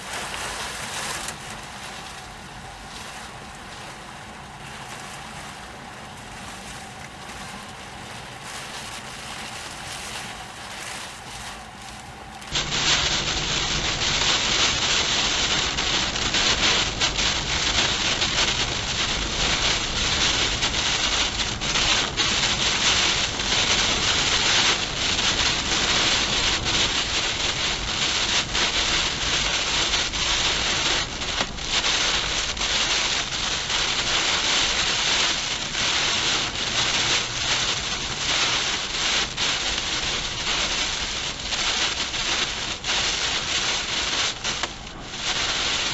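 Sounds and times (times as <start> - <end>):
storm wind gusts: 0.0 - 29.1
heavy rain: 0.0 - 45.9.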